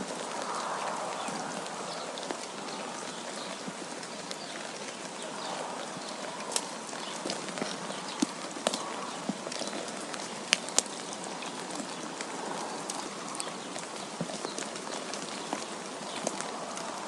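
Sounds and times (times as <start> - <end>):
wind hissing: 0.0 - 8.0
irregular ticks and taps: 6.0 - 16.6.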